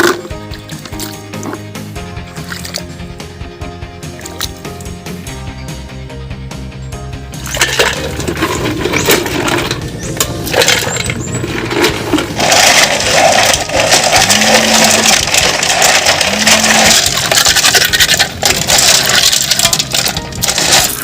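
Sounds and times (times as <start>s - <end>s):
shells scraping and rattling: 7.5s - 21.0s.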